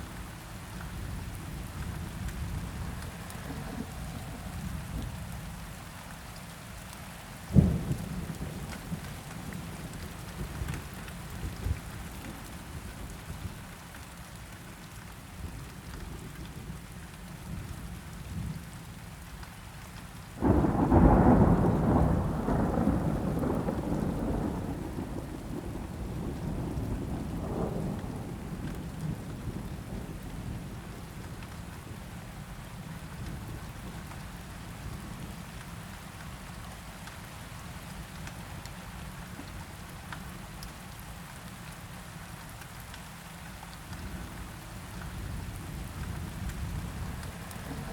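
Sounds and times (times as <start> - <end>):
steady rain: 0.0 - 47.9
thunder rumbling: 20.4 - 30.8, 45.4 - 47.9.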